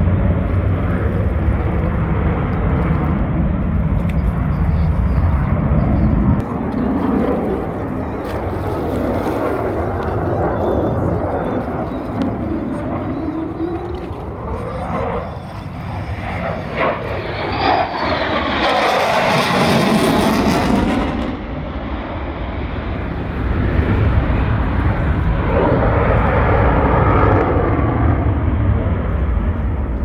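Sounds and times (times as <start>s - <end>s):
airplane engine flying past: 0.0s - 30.0s
deep rumble: 0.0s - 30.0s.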